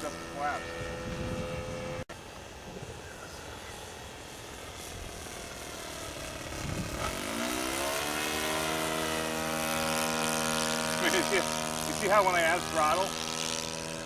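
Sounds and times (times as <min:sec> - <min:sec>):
model plane engine revving: 0:00.0 - 0:14.0
wind noise hiss: 0:00.7 - 0:05.3, 0:06.0 - 0:07.6.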